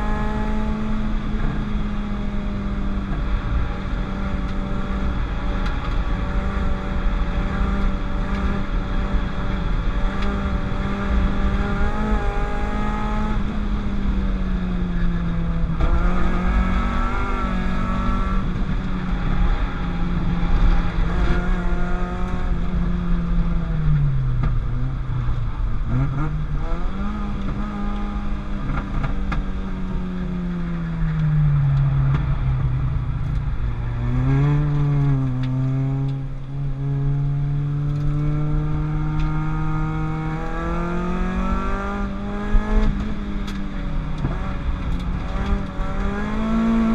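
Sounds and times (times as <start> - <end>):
car engine revving hard: 34.0 - 46.9.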